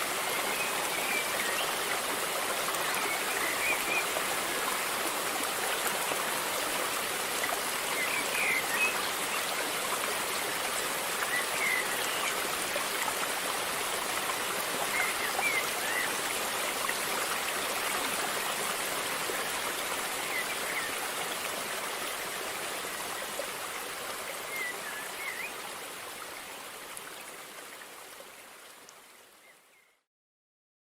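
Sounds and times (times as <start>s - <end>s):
river water rushing: 0.0s - 29.2s.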